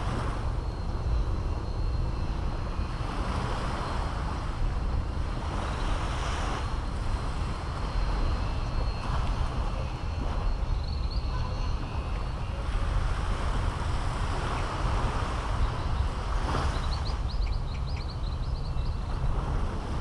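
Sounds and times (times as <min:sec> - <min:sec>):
wind on microphone: 0:00.0 - 0:20.0
bird chirping: 0:10.4 - 0:12.4, 0:16.7 - 0:19.1.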